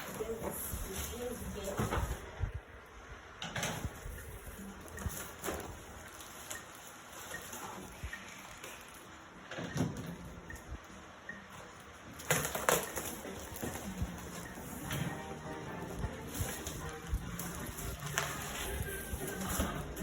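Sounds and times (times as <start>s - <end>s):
packaging rustling and scraping: 3.8s - 9.2s, 12.1s - 20.0s.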